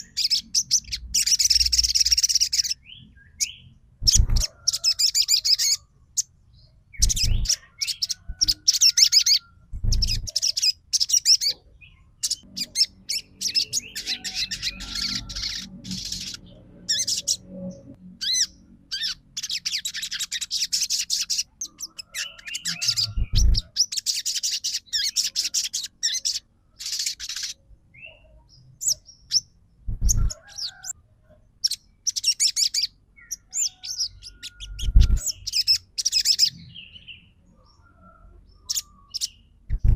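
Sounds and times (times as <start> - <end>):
songbird chirping: 0.0 - 39.9
dull low thumps: 7.0 - 7.5, 9.7 - 10.3, 23.2 - 23.6, 29.8 - 30.3, 39.7 - 39.9.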